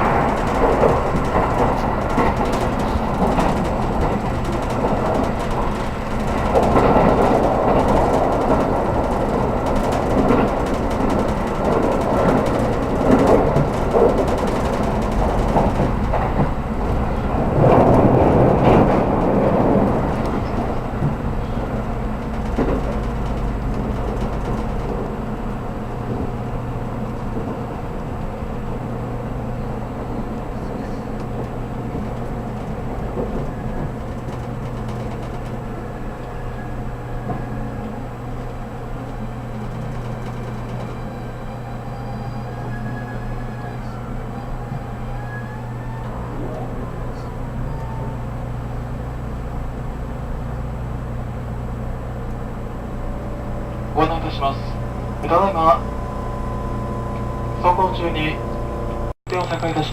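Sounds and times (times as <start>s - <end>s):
loud rumble: 0.0s - 36.0s, 46.2s - 59.8s
train equipment humming: 0.0s - 59.9s.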